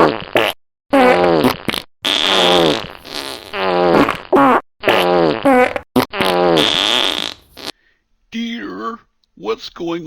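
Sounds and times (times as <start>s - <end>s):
cartoon fart sound effects: 0.0s - 7.8s.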